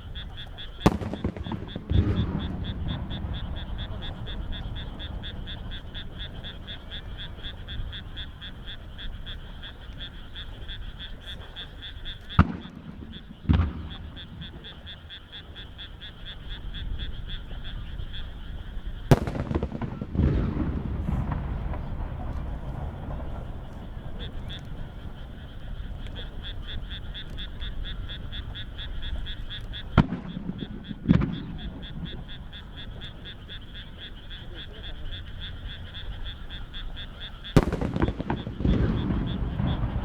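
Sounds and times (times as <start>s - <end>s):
frogs calling: 0.0s - 40.0s
firework shells bangs: 0.7s - 7.8s, 12.4s - 14.9s, 19.1s - 26.9s, 37.5s - 40.0s
heavy boom with low rumble: 0.9s - 6.0s, 19.1s - 24.7s, 37.6s - 40.0s.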